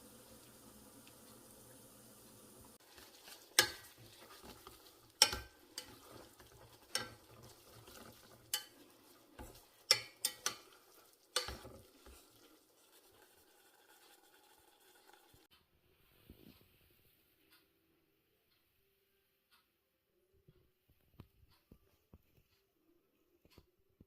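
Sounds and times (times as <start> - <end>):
utensils clinking against dishes: 3.5 - 4.6, 5.2 - 10.8.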